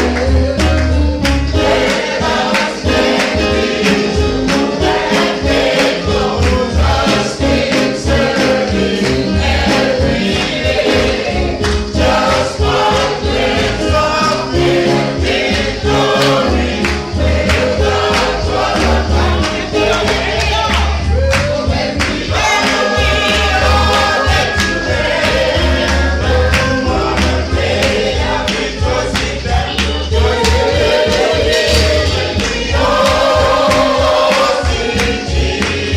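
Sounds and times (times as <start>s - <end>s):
band playing with steady beat: 0.0s - 35.9s
choir singing: 0.0s - 35.9s
strong bass line: 16.6s - 35.6s.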